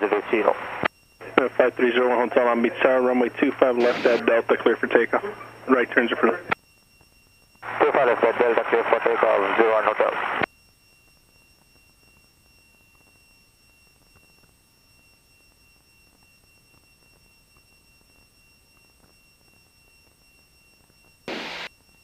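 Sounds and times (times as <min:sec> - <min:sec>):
radio hiss: 0:00.0 - 0:06.6, 0:07.6 - 0:10.5, 0:21.3 - 0:21.7
steady high-pitched whine: 0:00.0 - 0:22.0.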